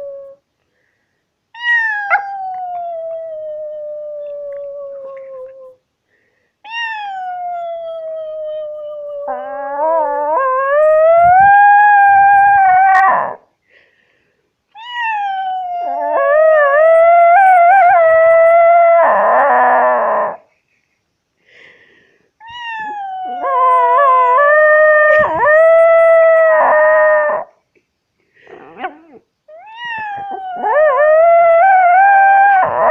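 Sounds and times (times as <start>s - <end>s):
dog howling: 1.6s - 5.7s, 7.0s - 13.4s, 15.1s - 20.4s, 22.8s - 27.5s, 28.6s - 32.9s.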